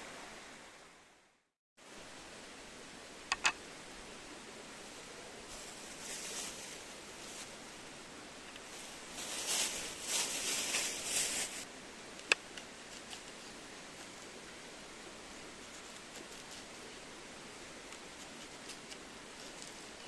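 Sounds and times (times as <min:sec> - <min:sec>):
rustling handling noises: 0:04.8 - 0:11.7, 0:12.5 - 0:14.3, 0:15.6 - 0:17.0, 0:17.8 - 0:20.0.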